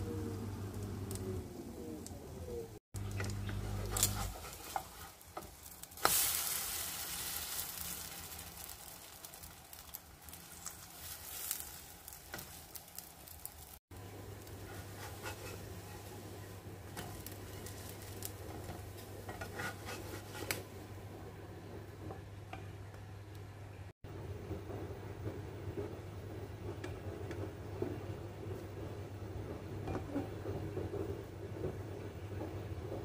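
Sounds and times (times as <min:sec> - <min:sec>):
toast sizzling in a skillet: 0:03.0 - 0:20.7
spatula taps and scrapes: 0:14.5 - 0:16.1, 0:18.2 - 0:20.7.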